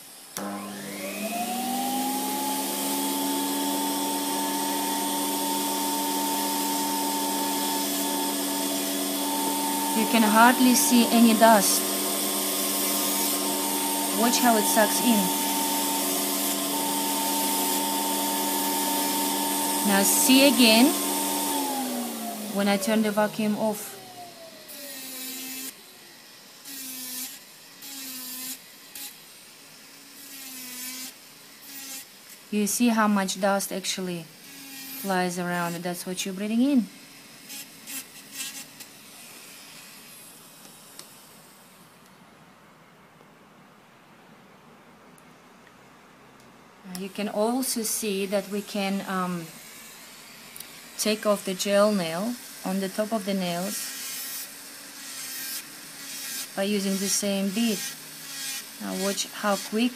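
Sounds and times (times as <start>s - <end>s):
nail drill whining: 0.0s - 29.2s, 34.4s - 35.8s, 36.6s - 40.8s, 48.1s - 59.9s.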